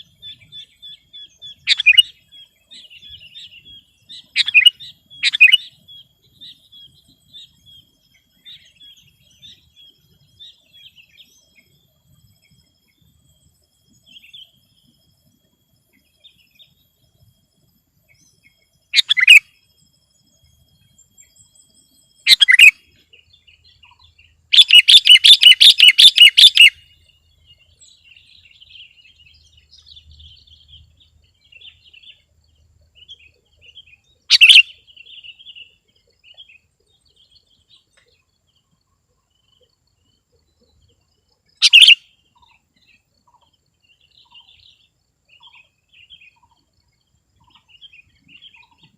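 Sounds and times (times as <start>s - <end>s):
bulbul calling: 0.0s - 11.7s, 18.5s - 19.6s, 22.2s - 26.9s, 33.0s - 36.6s, 41.5s - 46.7s, 47.4s - 48.9s
faint bird chirps: 0.0s - 48.9s.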